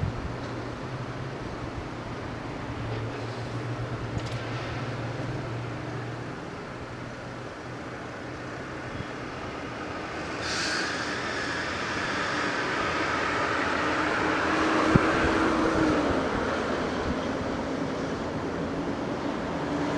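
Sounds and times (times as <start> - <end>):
electric train running: 7.7 - 19.9
short hiss: 10.2 - 13.1.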